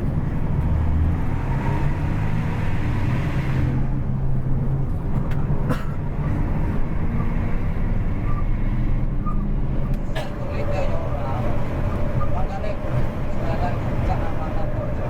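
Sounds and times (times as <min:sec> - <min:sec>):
bus engine drone: 0:00.0 - 0:15.0
road noise: 0:00.0 - 0:15.0.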